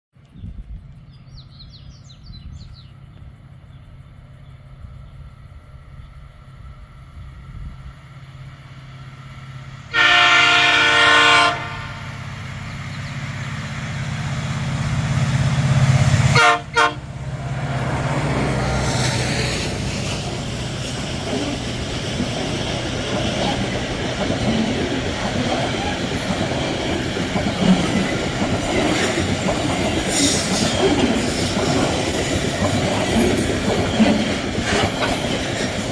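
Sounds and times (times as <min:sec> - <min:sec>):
diesel locomotive engine hum: 0:00.2 - 0:35.9
rush of train passing: 0:00.3 - 0:35.9
birds chirping: 0:00.4 - 0:05.4, 0:12.3 - 0:13.5
train air horn: 0:09.9 - 0:12.1, 0:16.3 - 0:17.1.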